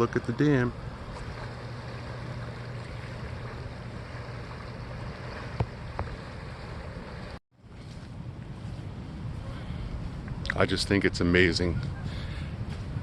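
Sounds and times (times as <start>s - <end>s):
flowing water: 0.0s - 7.8s
low steady hum: 0.0s - 13.0s.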